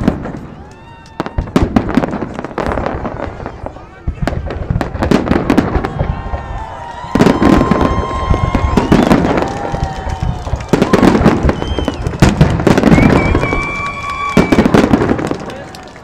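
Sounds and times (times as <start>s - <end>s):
firework bursts and crackling: 0.0s - 16.0s
firework whistling: 5.2s - 15.4s.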